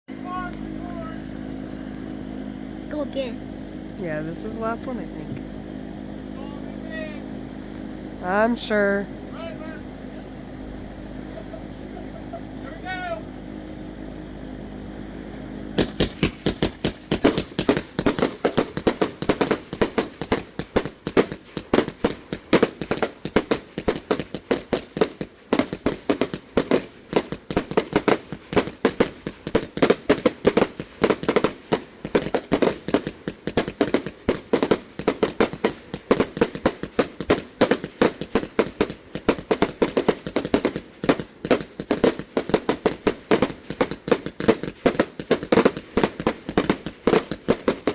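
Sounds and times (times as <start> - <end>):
firework cake bangs: 15.8 - 47.9.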